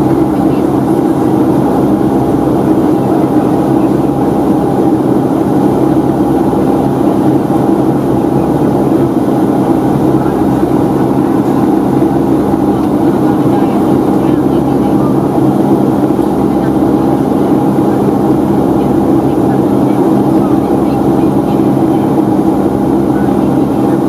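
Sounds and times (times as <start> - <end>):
airplane engines droning: 0.0 - 24.0
low hum tones: 0.0 - 24.0.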